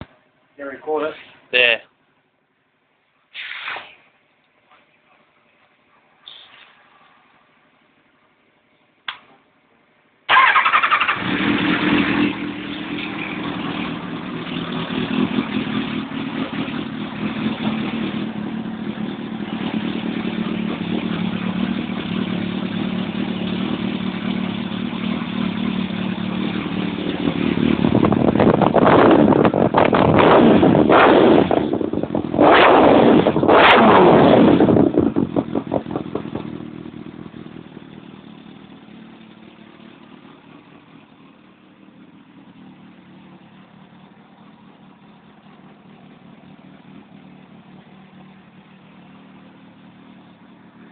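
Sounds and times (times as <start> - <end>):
motorcycle engine idling and revving: 10.3 - 50.9.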